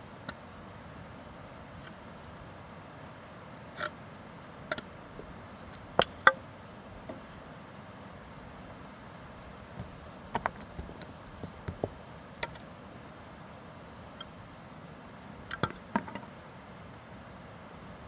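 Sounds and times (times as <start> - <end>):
steady background hiss: 0.0 - 18.0
sharp knocks and taps: 9.8 - 12.7, 15.5 - 16.3.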